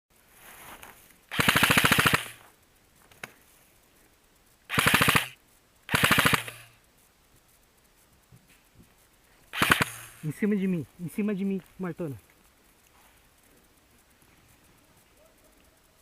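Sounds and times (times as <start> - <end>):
airsoft rifle bursts: 1.3 - 2.5, 4.7 - 6.8, 9.5 - 10.8.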